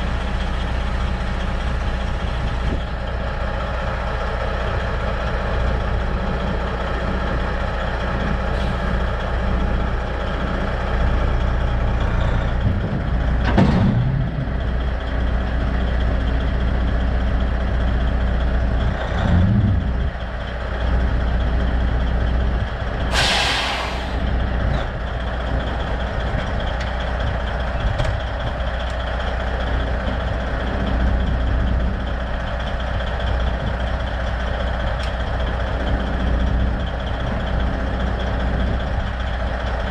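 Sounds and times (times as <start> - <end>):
diesel truck engine idling: 0.0 - 39.9
air hissing: 23.1 - 24.3.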